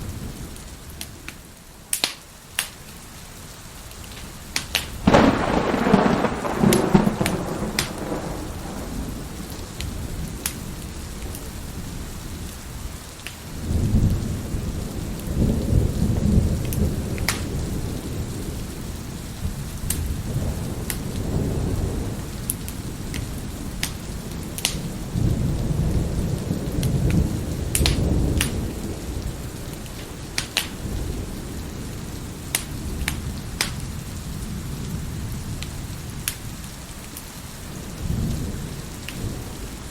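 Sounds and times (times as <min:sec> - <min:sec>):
wood fire crackling: 0:00.0 - 0:13.6, 0:22.0 - 0:25.7, 0:26.4 - 0:34.4
steady rain: 0:00.0 - 0:39.9
rolling thunder: 0:05.0 - 0:12.9, 0:13.6 - 0:36.6, 0:37.6 - 0:39.9.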